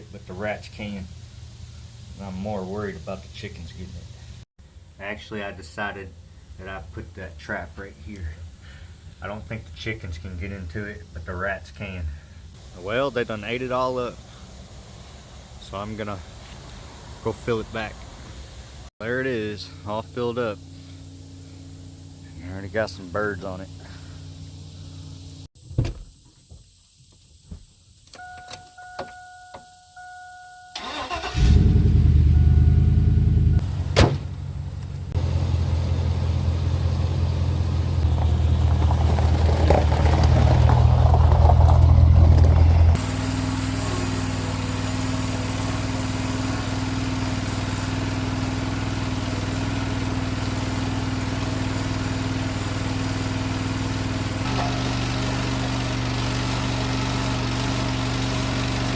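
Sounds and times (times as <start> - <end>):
truck engine starting and running: 30.7 - 58.9.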